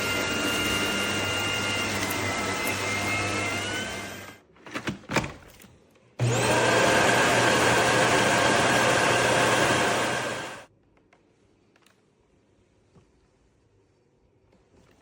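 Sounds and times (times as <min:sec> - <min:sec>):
vacuum cleaner motor whine: 0:00.0 - 0:04.4, 0:06.2 - 0:10.7.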